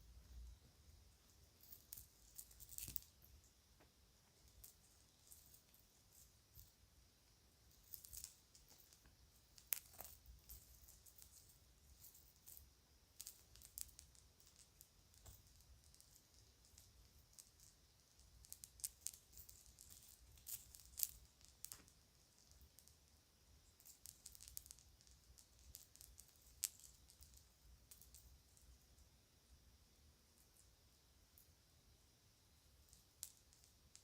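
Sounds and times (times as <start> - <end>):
jewelry and bags crinkling: 1.6 - 3.2, 7.7 - 17.7.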